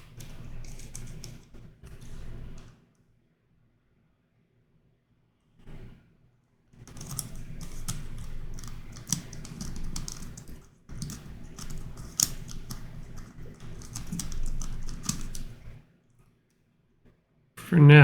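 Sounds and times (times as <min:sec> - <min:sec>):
plastic puzzle clicking and clacking: 0:06.9 - 0:15.7.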